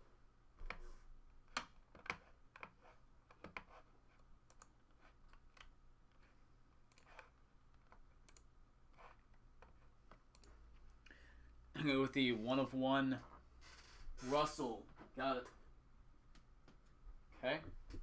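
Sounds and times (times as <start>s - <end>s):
faint clicks and taps: 0.6s - 11.2s.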